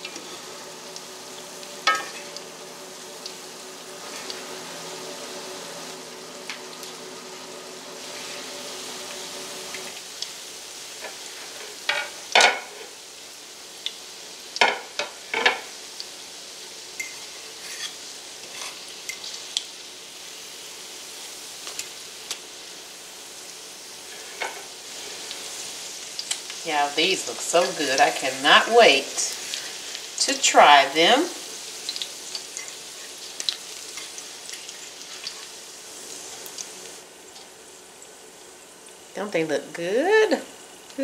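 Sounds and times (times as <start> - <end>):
faint steady hum: 0.0 - 14.8
patties sizzling in skillet: 0.0 - 41.0.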